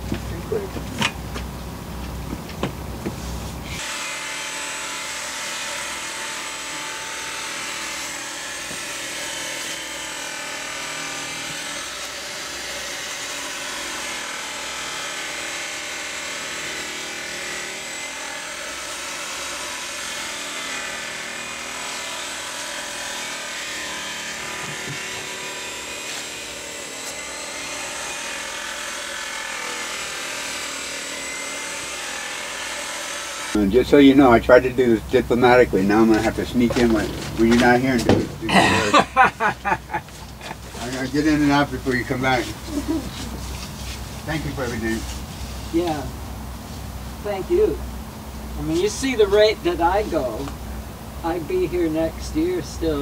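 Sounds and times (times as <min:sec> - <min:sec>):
electric grinder whining: 0:03.7 - 0:33.6, 0:36.2 - 0:45.0.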